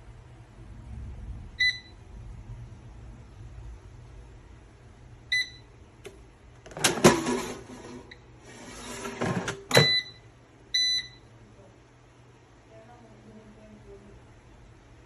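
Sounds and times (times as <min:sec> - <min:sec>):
appliance control panel beeping: 0:01.6 - 0:01.9, 0:05.3 - 0:07.4, 0:09.4 - 0:11.3
appliance clattering and rustling: 0:06.6 - 0:10.0.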